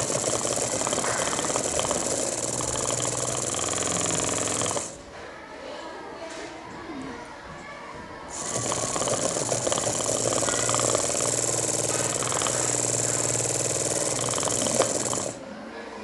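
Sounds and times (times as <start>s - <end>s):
small electric motor running: 0.0s - 5.0s, 8.3s - 15.4s.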